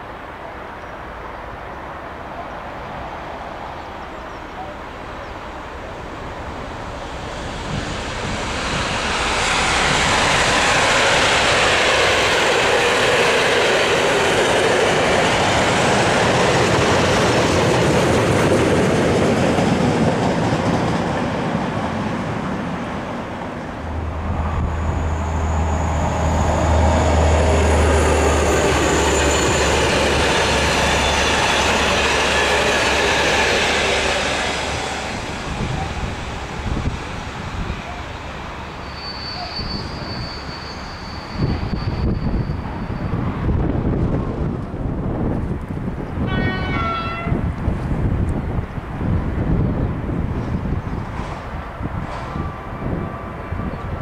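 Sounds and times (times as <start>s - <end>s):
diesel locomotive engine hum: 0.0s - 54.0s
train wheels on track: 1.2s - 54.0s
faint high wheel squeal: 24.5s - 33.2s, 37.6s - 43.4s.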